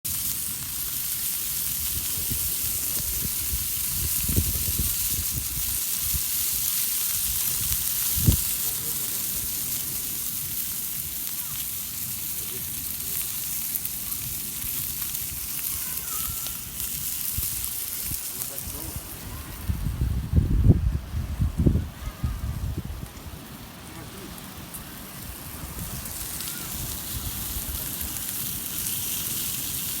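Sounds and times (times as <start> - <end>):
meat sizzling: 0.0 - 30.0
wind rumble on microphone: 1.7 - 8.8, 14.2 - 23.8, 24.8 - 28.7.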